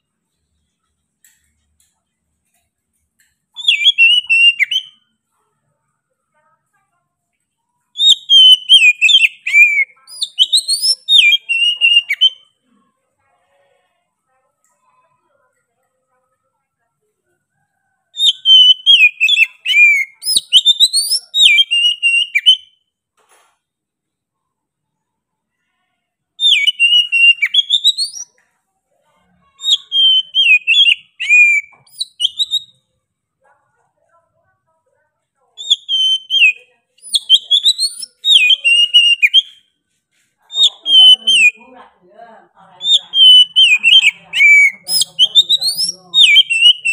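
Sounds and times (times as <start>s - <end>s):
magpie-robin singing whistled phrases: 3.5s - 5.0s, 7.9s - 12.6s, 18.2s - 22.8s, 26.4s - 28.4s, 29.6s - 32.8s, 35.6s - 39.7s, 40.5s - 41.7s, 42.8s - 46.9s.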